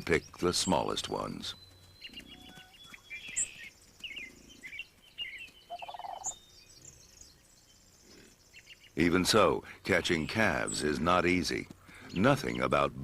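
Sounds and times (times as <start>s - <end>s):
birds chirping: 0.0s - 13.0s
low rapid chattering bird call: 1.6s - 6.4s.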